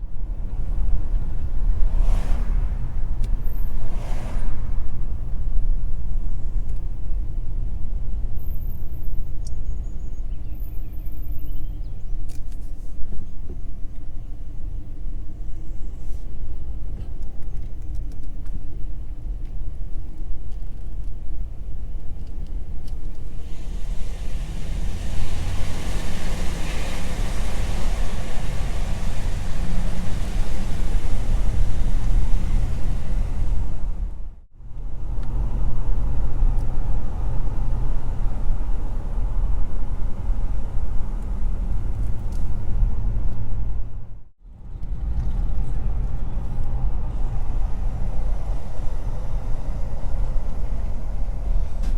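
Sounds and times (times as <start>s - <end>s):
engine and road rumble: 0.0s - 51.9s
hissing rush: 23.3s - 34.3s.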